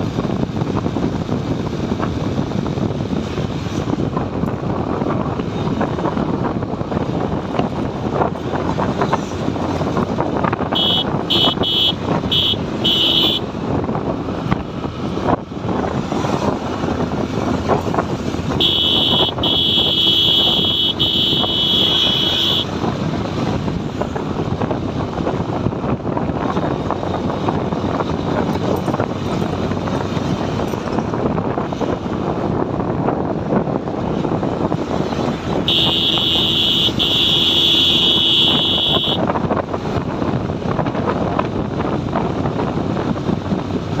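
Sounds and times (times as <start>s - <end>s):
motorcycle engine and road noise: 0.0s - 44.0s
wind on microphone: 0.0s - 44.0s
vehicle horn beeping: 10.7s - 13.4s, 18.6s - 22.7s, 35.7s - 39.2s.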